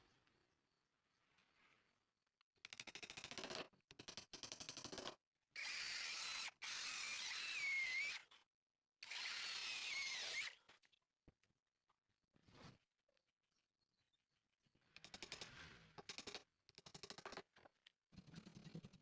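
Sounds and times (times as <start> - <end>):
power tool whining on wood: 5.6 - 8.2, 9.0 - 10.6.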